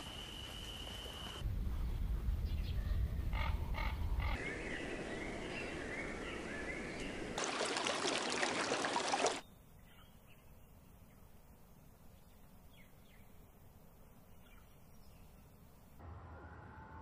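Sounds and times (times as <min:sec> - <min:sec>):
low rumble: 0:01.4 - 0:06.2.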